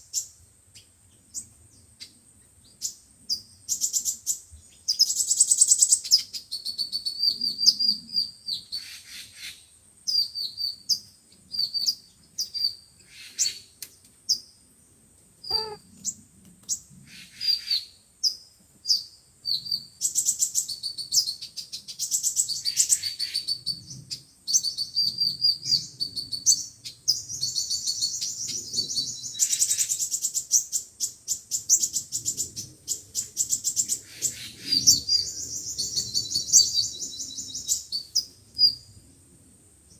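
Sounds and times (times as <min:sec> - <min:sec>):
sunbirds chirping and trilling: 0:15.5 - 0:39.2.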